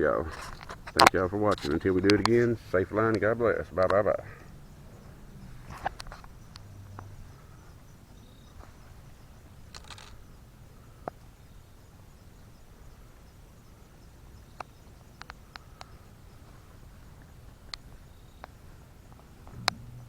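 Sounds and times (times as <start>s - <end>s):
high insect trill: 0.0s - 20.0s
sharp clicks: 0.4s - 7.2s, 9.7s - 10.2s, 19.4s - 20.0s.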